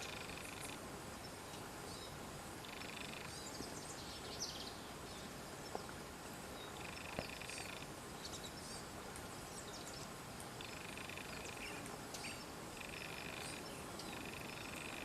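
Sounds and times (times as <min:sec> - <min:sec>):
insect buzzing trill: 0:00.0 - 0:00.8, 0:02.6 - 0:03.3, 0:10.6 - 0:11.7, 0:12.8 - 0:15.0.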